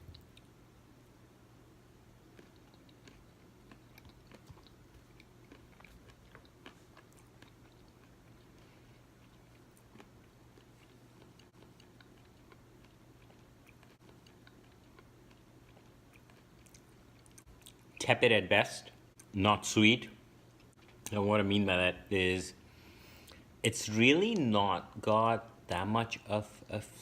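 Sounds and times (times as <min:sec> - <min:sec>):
low steady hum: 0:00.0 - 0:27.0
person quietly chewing: 0:02.2 - 0:18.0.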